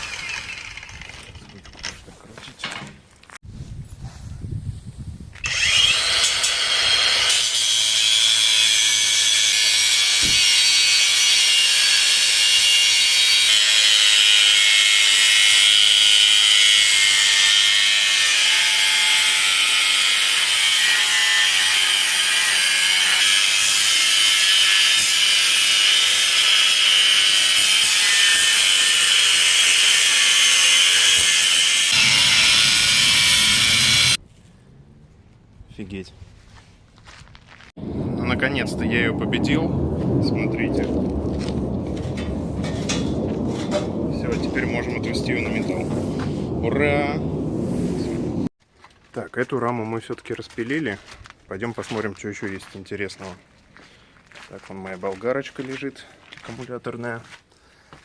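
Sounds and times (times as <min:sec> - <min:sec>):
angle grinder cutting metal: 0:00.0 - 0:01.4, 0:05.4 - 0:34.2.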